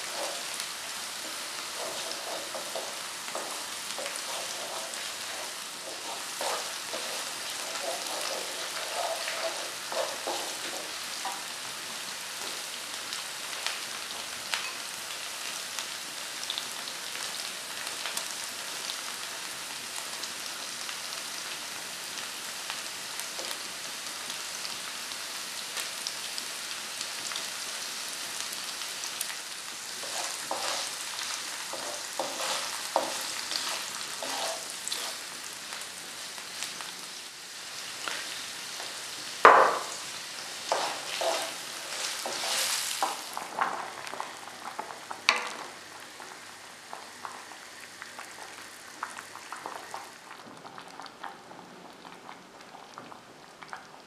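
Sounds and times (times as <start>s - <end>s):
wooden spoon scraping a pan: 0.0s - 11.6s, 29.8s - 35.4s, 39.5s - 45.8s
meat sizzling in a pan: 0.0s - 54.0s.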